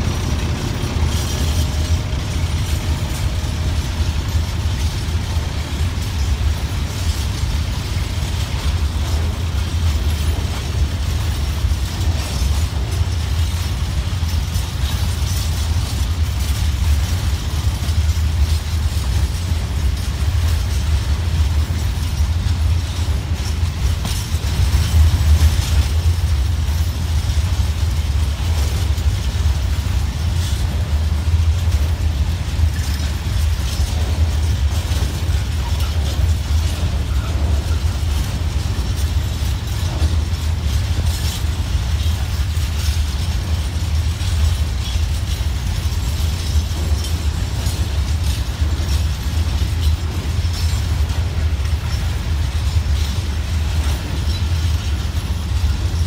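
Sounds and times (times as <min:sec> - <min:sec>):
faint clicking and rattling: 0:00.0 - 0:56.0
freight wagons rumbling on rails: 0:00.0 - 0:56.0.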